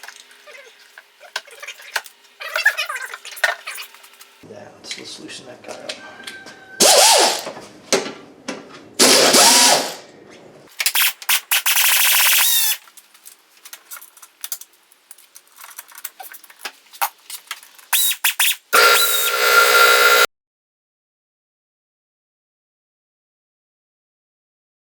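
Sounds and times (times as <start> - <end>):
power tool motor whine: 6.8 - 7.4, 9.0 - 10.0, 18.8 - 20.3.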